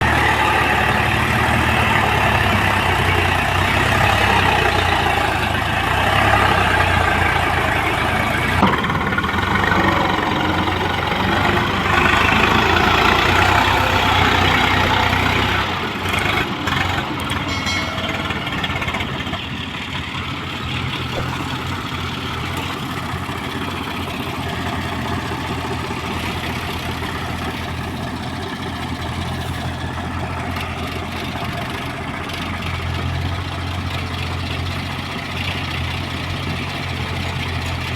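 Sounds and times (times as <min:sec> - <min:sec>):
diesel engines running: 0:00.0 - 0:37.9
sharp knock: 0:08.6 - 0:11.5.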